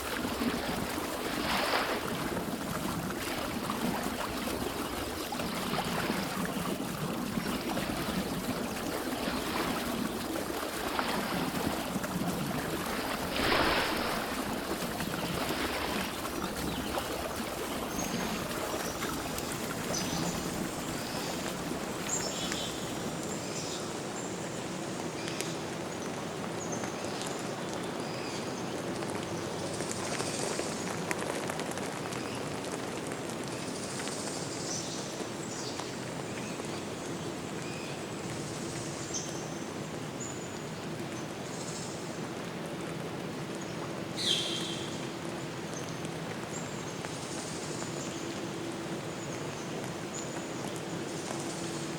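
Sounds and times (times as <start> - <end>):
water rushing: 0.0 - 24.1.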